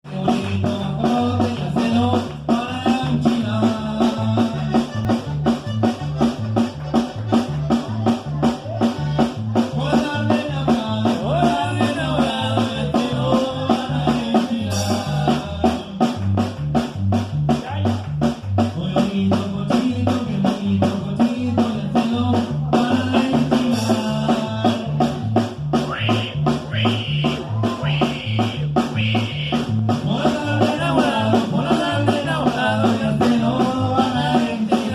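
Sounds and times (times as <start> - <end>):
bass alternating two notes: 0.0 - 34.9
drums keeping quick beat: 0.0 - 34.9
accordion melody: 0.1 - 16.8.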